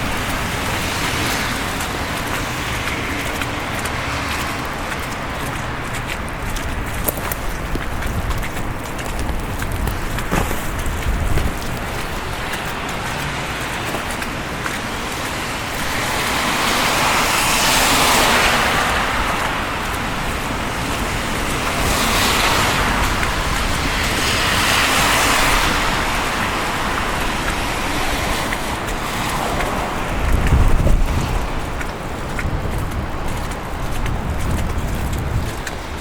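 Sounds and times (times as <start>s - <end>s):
traffic noise: 0.0s - 36.0s
tyre hiss of passing cars: 14.8s - 31.4s.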